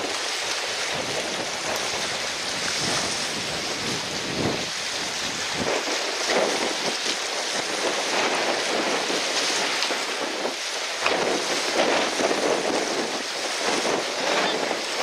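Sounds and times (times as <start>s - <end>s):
rushing splashing water: 0.0s - 15.0s
wind buffeting microphone: 0.0s - 15.0s.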